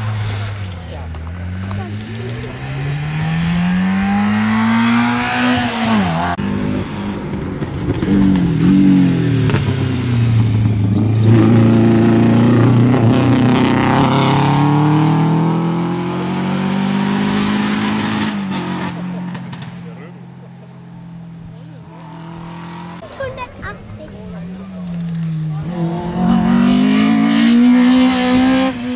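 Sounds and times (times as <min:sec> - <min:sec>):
rally car engines accelerating: 0:00.0 - 0:28.9.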